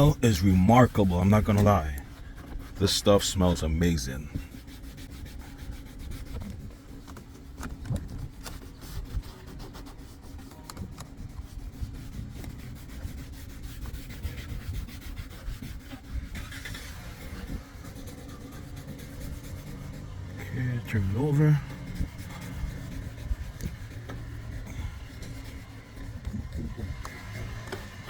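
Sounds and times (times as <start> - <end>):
scrubbing plastic door panel: 0.0 - 28.0.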